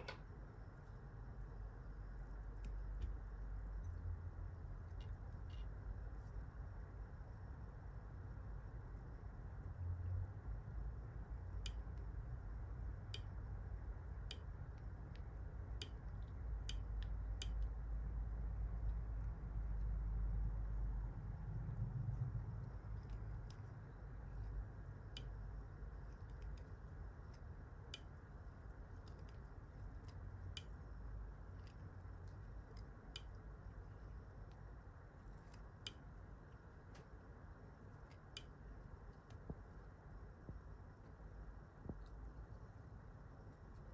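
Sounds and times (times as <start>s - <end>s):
low steady hum: 0.0s - 43.9s
faint small clicks: 4.8s - 5.8s, 13.0s - 13.4s, 14.2s - 17.8s, 31.5s - 33.6s, 34.4s - 37.2s, 37.8s - 39.8s.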